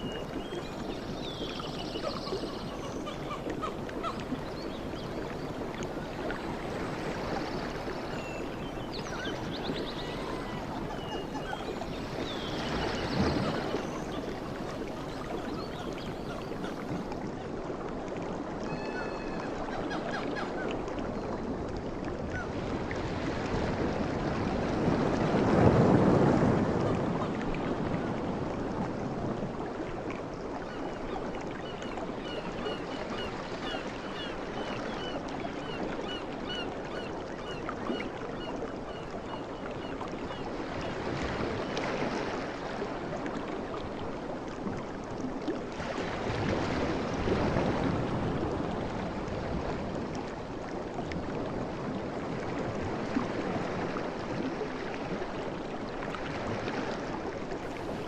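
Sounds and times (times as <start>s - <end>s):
ocean waves washing in: 20.8s - 30.7s, 45.4s - 58.0s.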